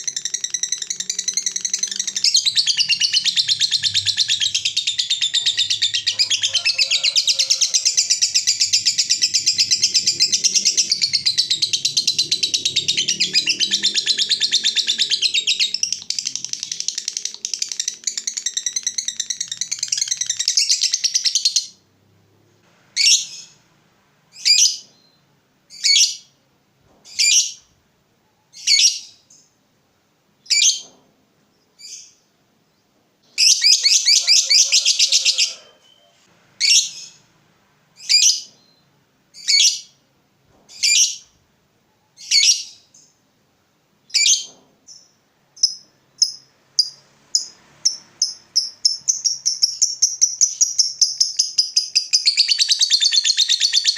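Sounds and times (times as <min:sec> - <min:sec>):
lovebird shrill calls: 0:00.0 - 0:21.6, 0:33.4 - 0:37.2, 0:45.6 - 0:53.9.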